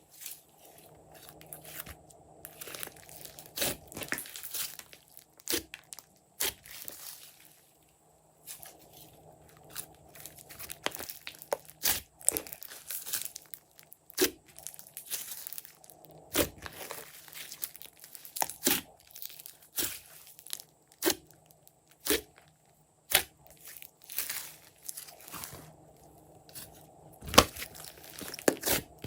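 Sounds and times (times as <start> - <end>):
slime squelching: 0.2 - 7.6, 8.4 - 29.0
sticky slime pops and crackles: 23.1 - 23.4.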